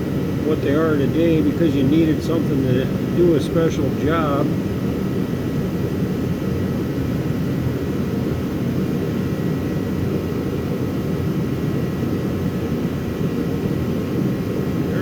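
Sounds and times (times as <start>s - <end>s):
faint whine: 0.0s - 6.0s, 11.6s - 15.0s
heater rushing noise: 14.7s - 15.0s.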